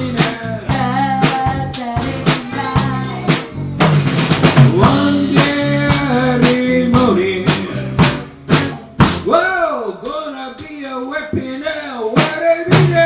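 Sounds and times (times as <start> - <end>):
live band playing: 0.0 - 9.4
snare and bass drum hits: 0.0 - 9.4
bending lead notes: 0.0 - 9.5.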